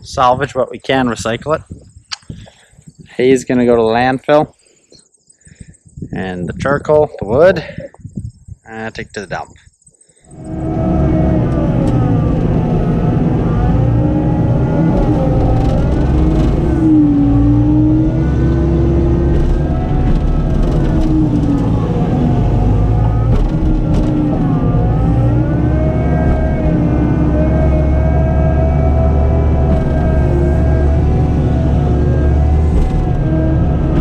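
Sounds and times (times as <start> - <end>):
loader engine running hard: 10.3 - 34.0.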